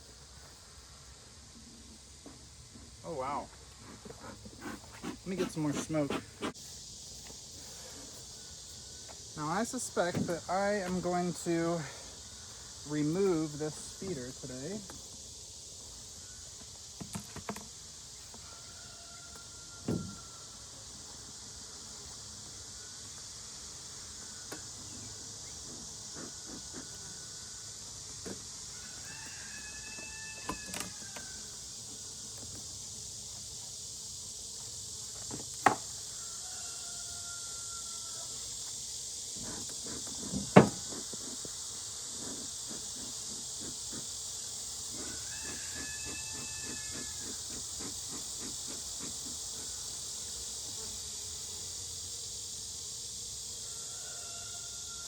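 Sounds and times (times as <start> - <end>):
insects chorus: 0.0 - 55.0
wooden hive equipment knocks: 35.3 - 35.9, 40.3 - 40.9.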